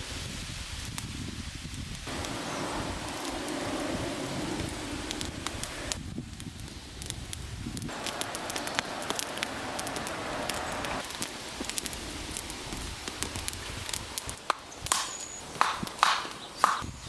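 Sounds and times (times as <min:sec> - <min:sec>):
steady hiss: 0:00.0 - 0:17.0
wood fire crackling: 0:00.0 - 0:17.0
knocks of wood: 0:14.5 - 0:16.9.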